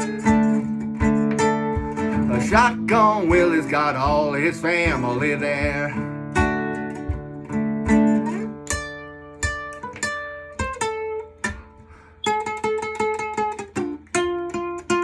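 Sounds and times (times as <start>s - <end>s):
acoustic guitar melody: 0.0s - 15.0s.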